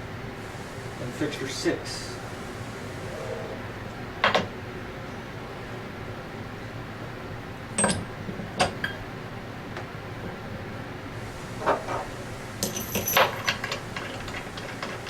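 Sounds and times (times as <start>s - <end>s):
steady background hum: 0.0s - 15.0s
metal parts clinking: 11.6s - 15.0s.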